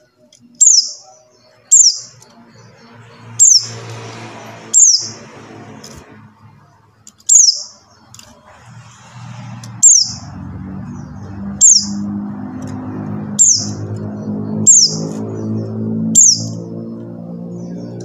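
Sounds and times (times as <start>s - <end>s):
low hum: 8.2s - 18.0s.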